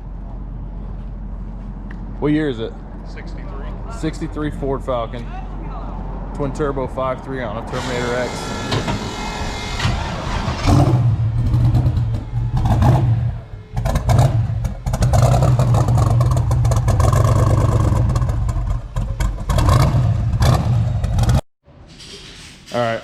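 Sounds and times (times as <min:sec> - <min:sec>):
car engine running loud: 0:07.4 - 0:21.4.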